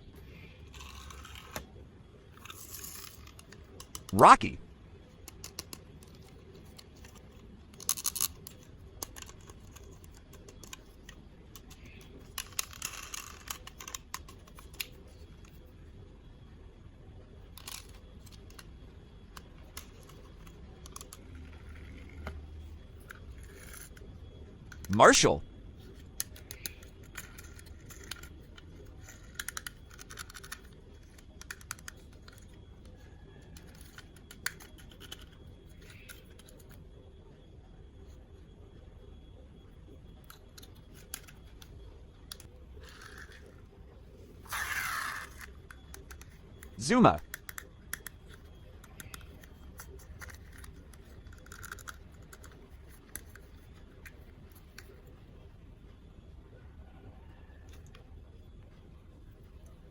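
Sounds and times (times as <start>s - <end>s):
small clicks: 26.2s - 36.8s, 44.5s - 55.0s.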